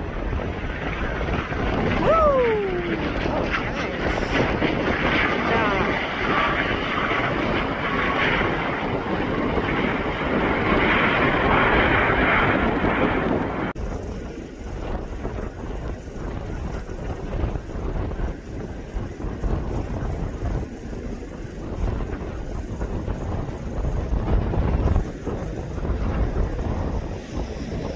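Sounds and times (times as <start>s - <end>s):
aircraft engine: 0.0s - 27.9s
wind buffeting microphone: 0.0s - 27.9s.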